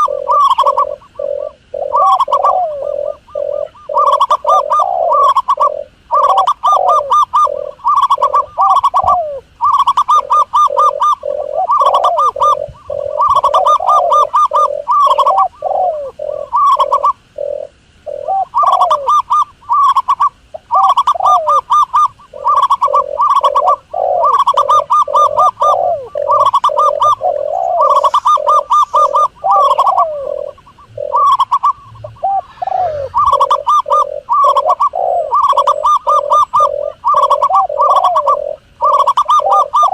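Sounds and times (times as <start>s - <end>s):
doves trilled cooing: 0.0s - 39.9s
low gliding coos: 0.0s - 39.9s.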